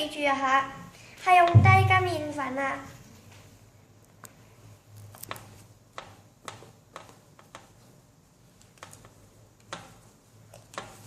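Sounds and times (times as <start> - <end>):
utensils tapping mixing bowl: 8.8 - 11.0.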